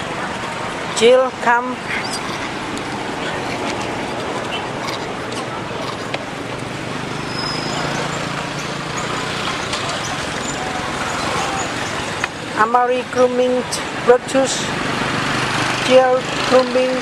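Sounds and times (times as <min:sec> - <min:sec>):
distant road traffic: 0:00.0 - 0:17.0.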